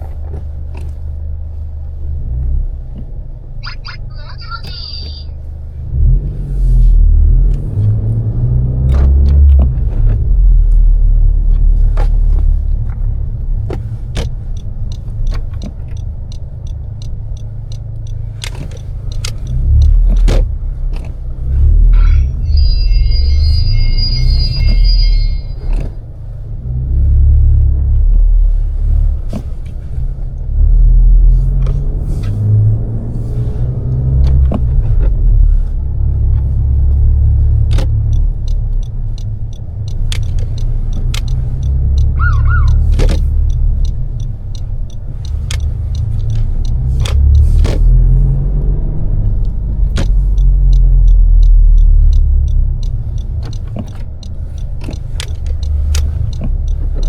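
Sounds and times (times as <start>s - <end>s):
car engine accelerating and slowing: 0.0s - 57.0s
sharp clicks: 11.6s - 25.8s, 37.6s - 48.3s, 49.2s - 57.0s.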